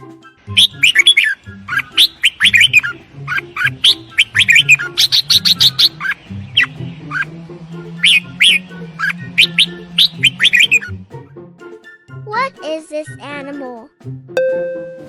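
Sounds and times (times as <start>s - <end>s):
bird chirping and warbling: 0.5s - 11.0s.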